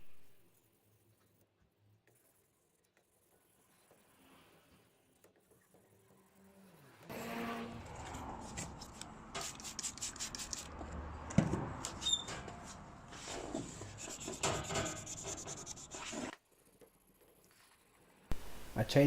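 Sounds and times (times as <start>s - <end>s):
sandpaper rubbing on metal: 13.2s - 16.3s.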